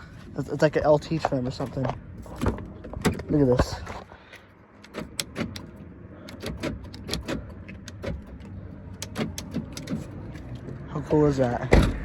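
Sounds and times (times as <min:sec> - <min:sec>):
power door locks clicking: 0:04.9 - 0:08.3, 0:09.0 - 0:10.1.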